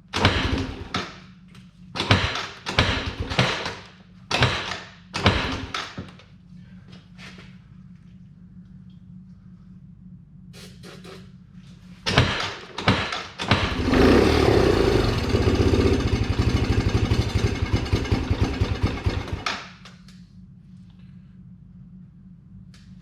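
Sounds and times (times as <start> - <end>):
engine sputtering and running roughly: 0.2 - 1.1, 12.1 - 19.8.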